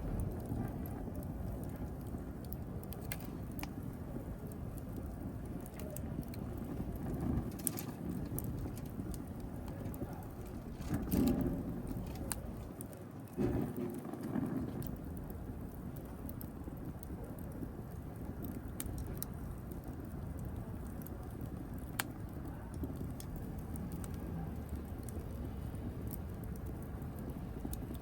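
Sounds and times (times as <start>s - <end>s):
fire crackling and popping: 0.0s - 28.0s
wood fire rumbling: 0.0s - 28.0s.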